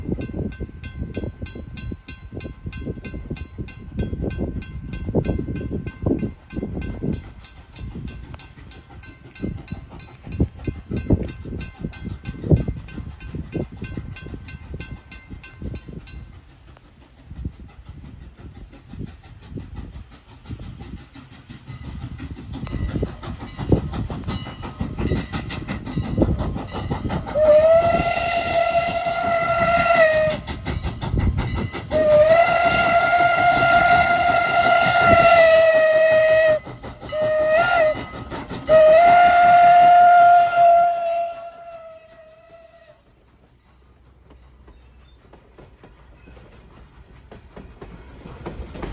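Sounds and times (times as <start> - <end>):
train wheels thumping over rail joints: 17.4 - 48.9
steam whistle: 27.3 - 30.6, 31.9 - 43.1.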